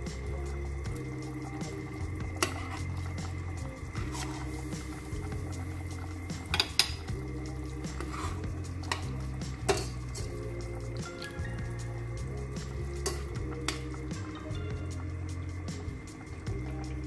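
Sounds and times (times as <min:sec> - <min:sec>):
background music: 0:00.0 - 0:17.0
utensils clinking on steel pot: 0:06.5 - 0:07.1, 0:08.0 - 0:10.3.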